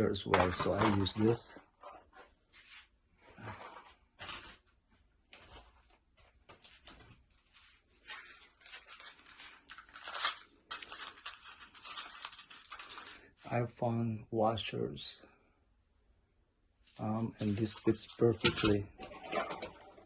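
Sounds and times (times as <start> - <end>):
packaging rustling and crinkling: 5.3 - 13.3.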